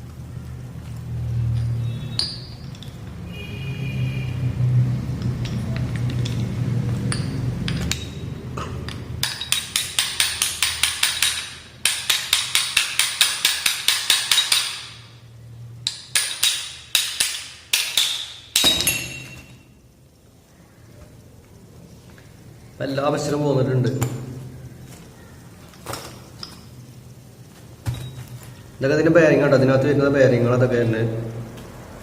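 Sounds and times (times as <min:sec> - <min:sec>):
hammer tapping on metal: 0:07.0 - 0:15.0.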